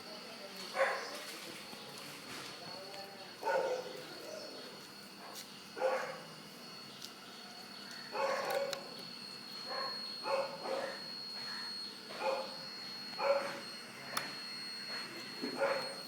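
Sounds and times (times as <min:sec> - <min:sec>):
dog barking: 0:00.7 - 0:01.2, 0:03.4 - 0:04.0, 0:05.2 - 0:06.2, 0:08.1 - 0:08.9, 0:09.7 - 0:11.1, 0:12.1 - 0:12.6, 0:13.2 - 0:13.6, 0:15.5 - 0:16.0.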